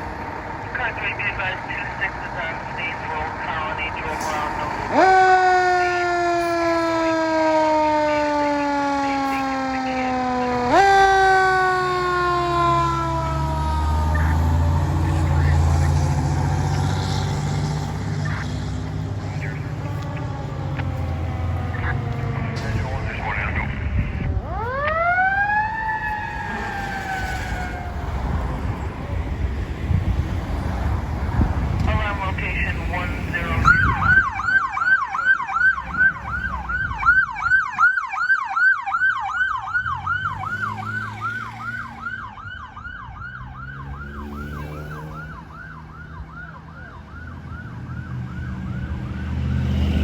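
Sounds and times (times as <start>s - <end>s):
deep engine rumble: 0.0s - 5.9s, 6.7s - 37.6s
emergency siren wailing: 0.0s - 50.0s.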